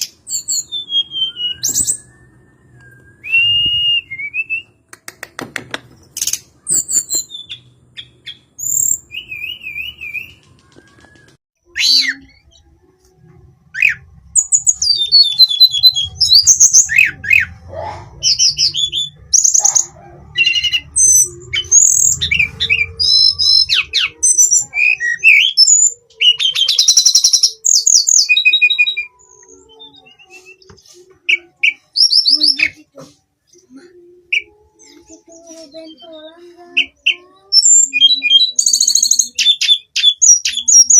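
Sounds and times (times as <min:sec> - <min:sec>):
bird singing whistled trills: 0:00.0 - 0:04.7, 0:06.2 - 0:12.7, 0:20.4 - 0:30.7, 0:36.8 - 0:40.9.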